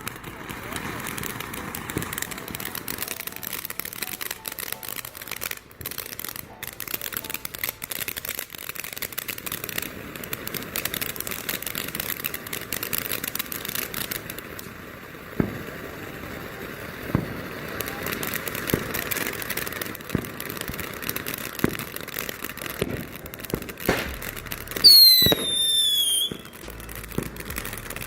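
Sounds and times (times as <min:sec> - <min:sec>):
firework crackling: 0:00.0 - 0:28.0.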